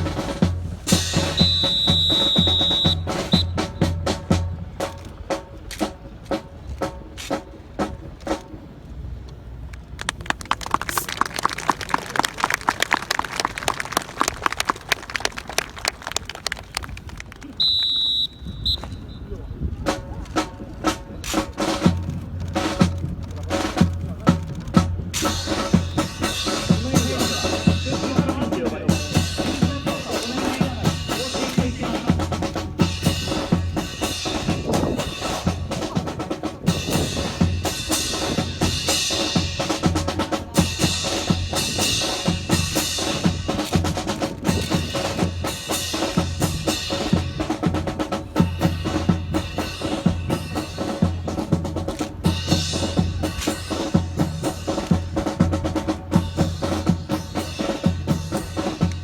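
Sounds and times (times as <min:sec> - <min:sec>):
bass drum beat: 0:00.0 - 0:05.1, 0:21.8 - 0:59.0
snare drum rolls: 0:00.0 - 0:08.6, 0:10.0 - 0:19.0, 0:19.8 - 0:59.0
sharp clacks: 0:09.3 - 0:18.0.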